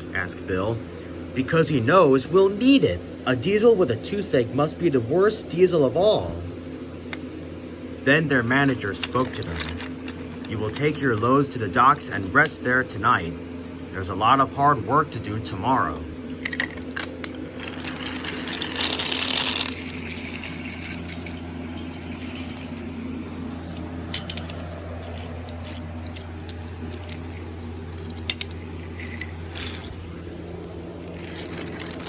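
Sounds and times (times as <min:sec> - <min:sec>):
toy train motor whirring: 0:16.5 - 0:22.8, 0:28.1 - 0:30.0, 0:31.0 - 0:32.0.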